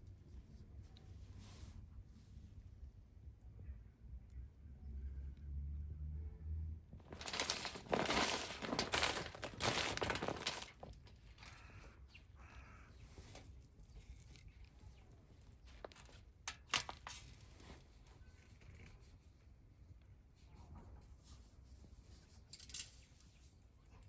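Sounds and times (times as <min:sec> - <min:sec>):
rustling and crinkling handling: 0:07.0 - 0:11.9, 0:13.0 - 0:19.0.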